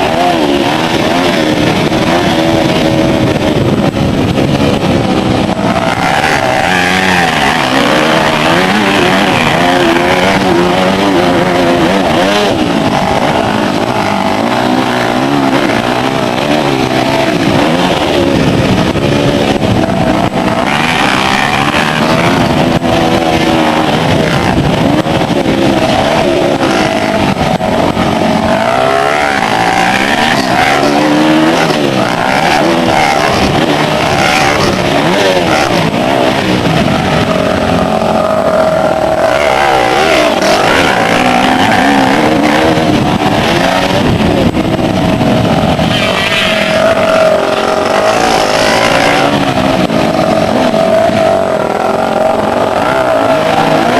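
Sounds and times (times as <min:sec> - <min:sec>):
motocross bike engines revving: 0:00.0 - 0:53.9.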